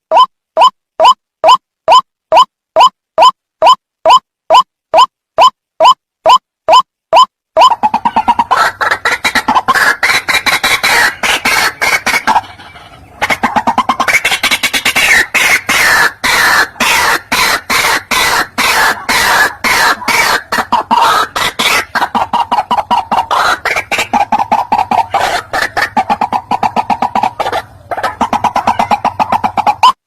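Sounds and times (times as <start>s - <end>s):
waterhen calling: 7.2s - 30.0s.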